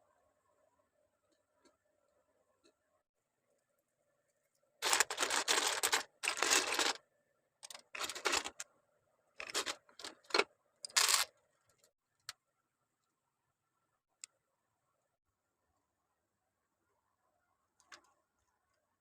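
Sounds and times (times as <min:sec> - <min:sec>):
plastic bricks clicking and rattling: 0:04.8 - 0:07.0, 0:07.6 - 0:08.6, 0:09.4 - 0:11.3.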